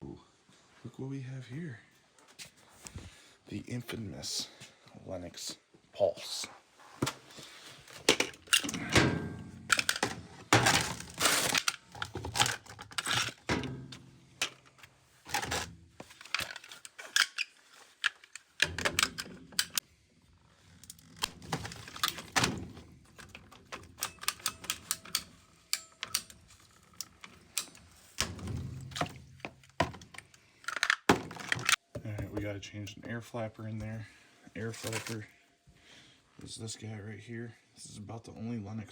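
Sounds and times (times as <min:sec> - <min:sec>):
tools and metal parts clicking: 0:07.9 - 0:19.8, 0:20.7 - 0:31.8.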